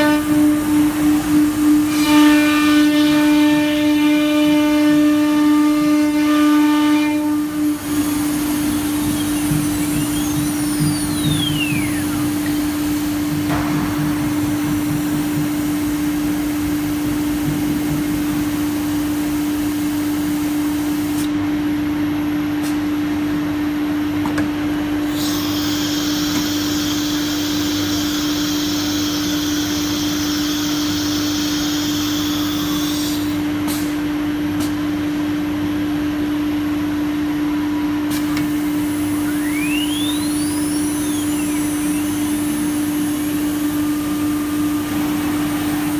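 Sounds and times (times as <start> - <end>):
cnc router machine whine: 0.0 - 21.1, 25.0 - 33.6, 36.9 - 45.9
rushing vacuum-like noise: 7.5 - 21.4, 37.7 - 45.9.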